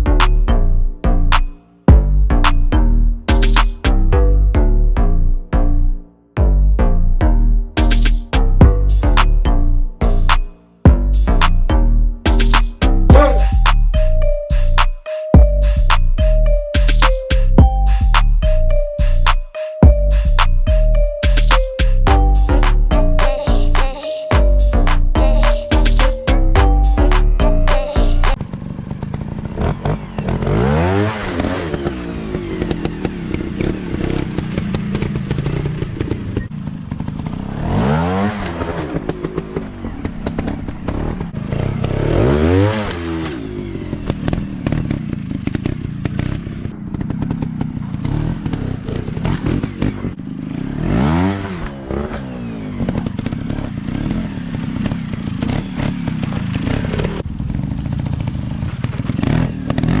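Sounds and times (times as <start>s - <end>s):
dirt bike engines droning: 7.8s - 60.0s
dirt bike revving past: 36.8s - 60.0s
clatter and crackle: 42.9s - 50.4s, 51.6s - 60.0s.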